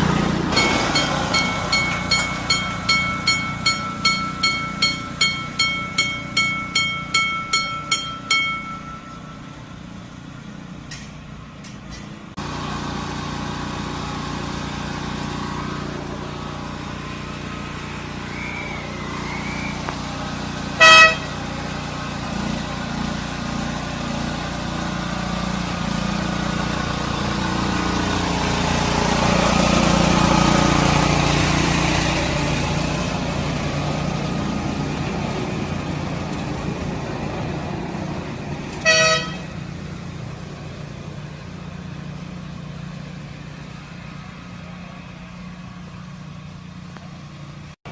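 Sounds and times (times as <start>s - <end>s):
locomotive running: 0.0s - 47.9s
train horn blasts: 20.7s - 21.5s, 38.8s - 39.8s.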